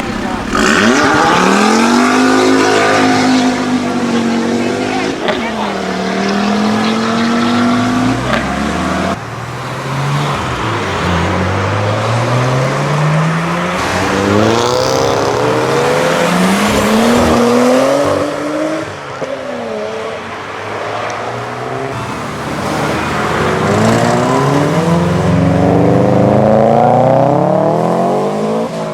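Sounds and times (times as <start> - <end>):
car engines accelerating: 0.0 - 28.9.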